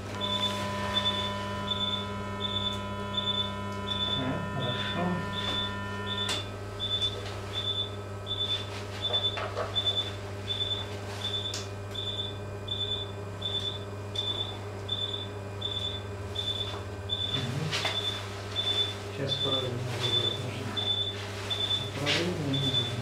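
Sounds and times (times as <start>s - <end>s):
equipment hum: 0.0s - 23.0s
patient monitor beeping: 0.0s - 23.0s.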